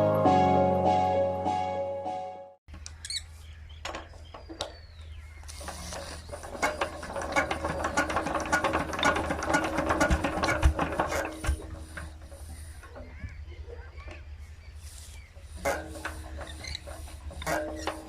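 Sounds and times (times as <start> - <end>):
diesel engine clattering: 3.7 - 18.0.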